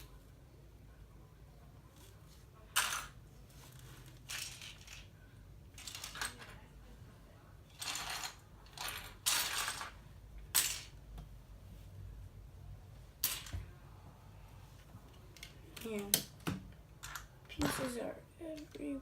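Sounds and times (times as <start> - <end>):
plastic bricks clattering: 3.9 - 5.1, 5.7 - 6.6, 7.8 - 11.0.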